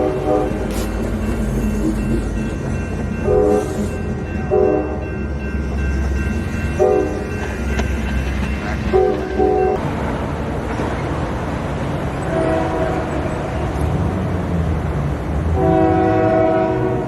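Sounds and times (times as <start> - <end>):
locomotive horn blasts: 0.0 - 1.0, 3.2 - 3.8, 4.5 - 5.1, 6.8 - 7.3, 8.8 - 9.8, 12.3 - 13.2, 15.6 - 17.0
freight train rumbling past: 0.0 - 17.0.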